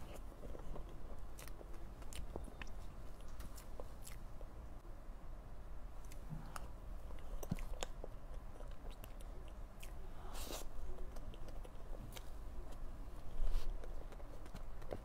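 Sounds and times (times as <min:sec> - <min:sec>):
person chewing: 0:00.0 - 0:04.6, 0:06.0 - 0:15.0.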